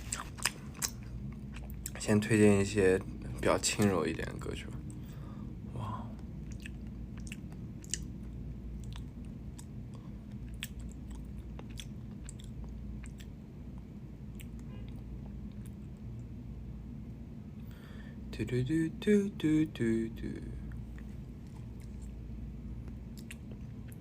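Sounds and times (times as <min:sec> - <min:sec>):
chewing and biting a hamburger: 0:00.0 - 0:02.0, 0:06.2 - 0:16.0, 0:20.9 - 0:24.0
steady low hum: 0:00.0 - 0:24.0.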